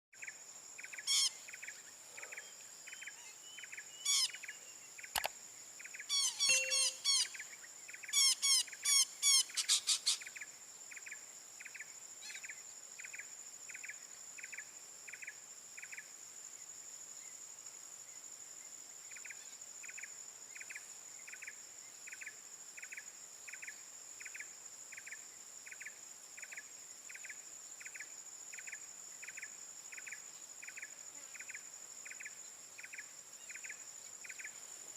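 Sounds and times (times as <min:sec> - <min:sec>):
insect chirping: 0:00.1 - 0:34.9
high insect drone: 0:00.2 - 0:34.9
harsh bird calls: 0:06.1 - 0:07.4.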